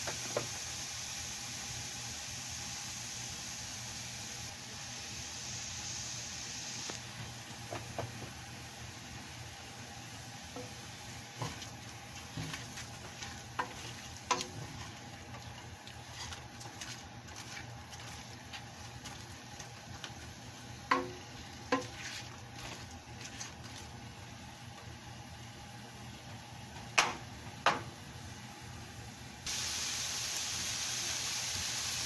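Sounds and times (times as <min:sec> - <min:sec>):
shrimp sizzling in a pot: 0:00.0 - 0:26.2, 0:29.2 - 0:32.0
spatula knocking against pot: 0:20.9 - 0:21.9.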